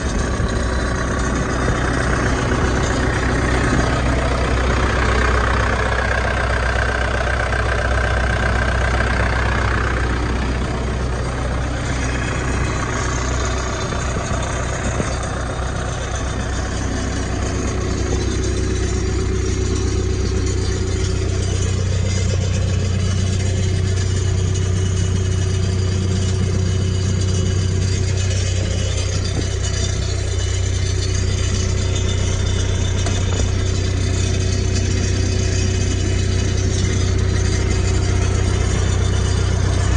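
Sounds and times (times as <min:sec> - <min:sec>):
diesel engine idling: 0:00.0 - 0:39.9
high engine whine: 0:00.0 - 0:39.9.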